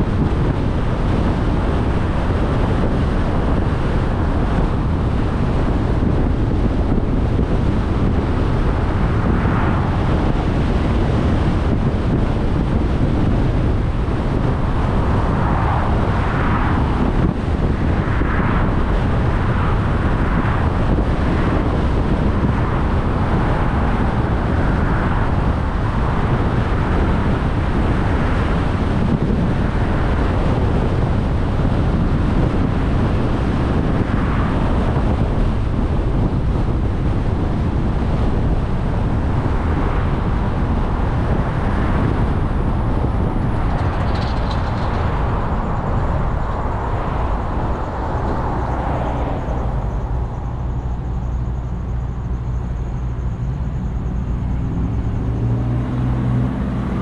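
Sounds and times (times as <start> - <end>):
car road noise: 0.0 - 57.0
wind buffeting microphone: 0.0 - 57.0.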